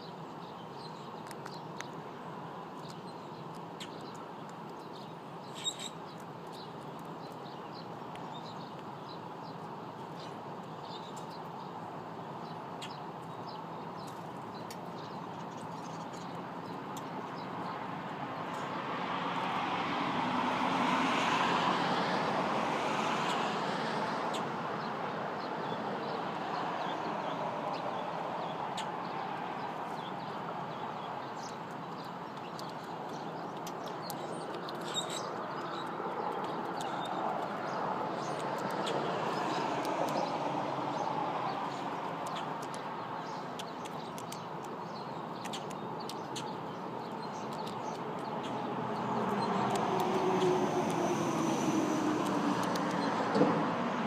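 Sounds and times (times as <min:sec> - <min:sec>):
small birds chirping: 0:00.0 - 0:54.0
vehicle passing by: 0:18.7 - 0:24.8, 0:48.4 - 0:54.0.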